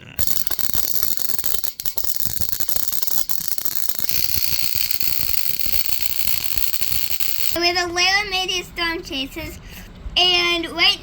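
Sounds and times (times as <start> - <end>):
electrical hiss: 0.0 - 7.6
spark gap crackling discharges: 0.0 - 7.6.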